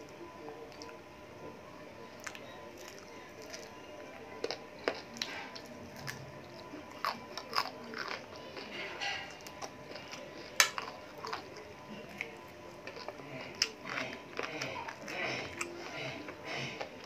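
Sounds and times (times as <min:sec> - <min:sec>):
person biting and chewing: 0:04.4 - 0:17.0.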